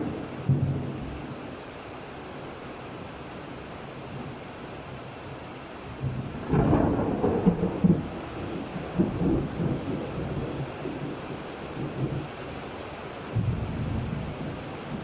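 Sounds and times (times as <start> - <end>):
thunder rumbling: 0.0 - 1.3, 6.0 - 12.3, 13.3 - 15.0
steady rain: 0.0 - 15.0.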